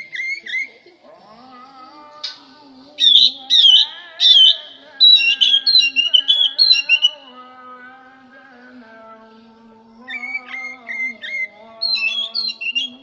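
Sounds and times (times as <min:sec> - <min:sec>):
songbird whistling: 0:00.0 - 0:00.8, 0:03.0 - 0:07.2, 0:10.1 - 0:13.0.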